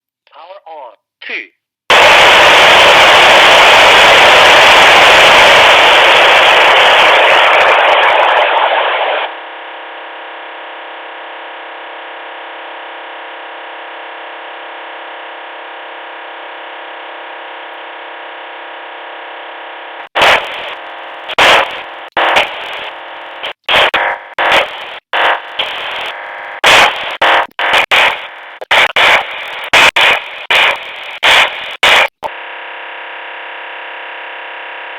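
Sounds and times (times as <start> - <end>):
static hiss: 1.9 - 9.3, 20.1 - 32.3
choppy static bursts: 1.9 - 9.4, 20.0 - 32.4
multi-tone buzz: 1.9 - 34.9.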